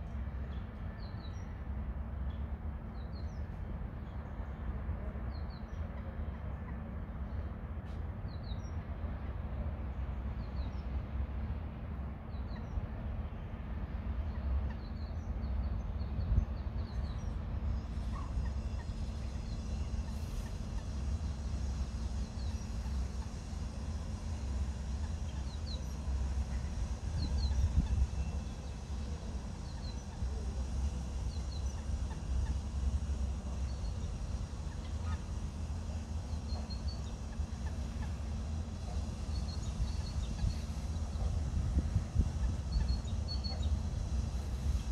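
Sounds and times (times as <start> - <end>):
steady low rumble: 0.0 - 44.9
small birds chirping: 24.4 - 44.5.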